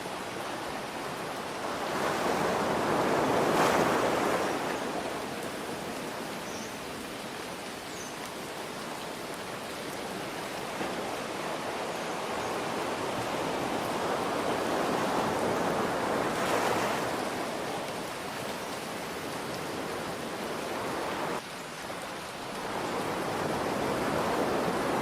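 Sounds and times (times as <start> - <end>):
ocean surf waves: 0.0 - 25.0.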